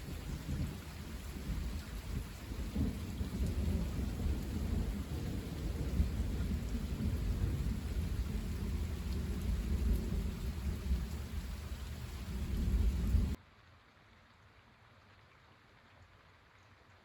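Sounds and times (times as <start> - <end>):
thunder rumbling: 0.0 - 13.4
steady rain: 0.0 - 17.0.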